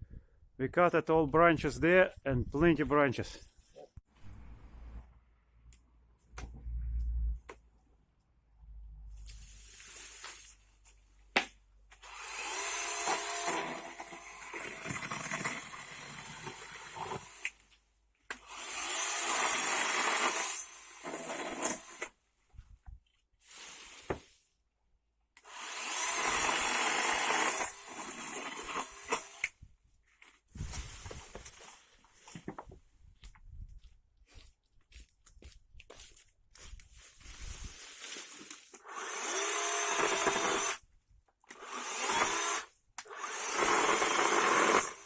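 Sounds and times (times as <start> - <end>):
electric chainsaw cutting branches: 12.0 - 17.6, 18.4 - 22.1, 25.4 - 29.6, 38.8 - 40.8, 41.5 - 45.0.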